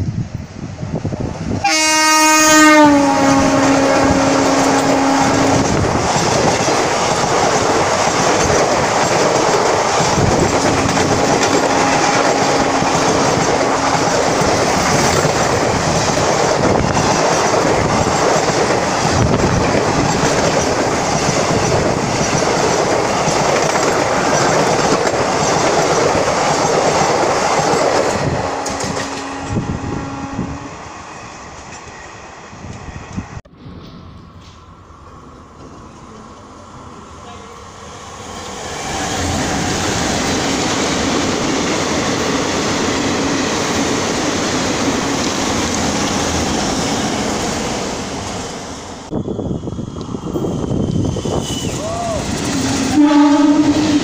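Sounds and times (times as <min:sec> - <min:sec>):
train horn blaring: 0:01.6 - 0:05.9, 0:10.8 - 0:15.1, 0:28.1 - 0:30.8, 0:52.6 - 0:54.0.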